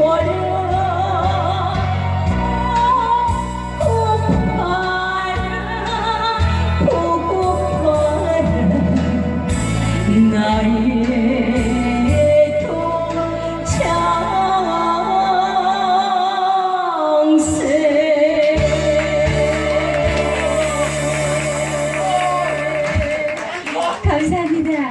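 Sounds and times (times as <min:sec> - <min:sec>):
backing track: 0:00.0 - 0:24.9
woman singing: 0:00.0 - 0:24.9.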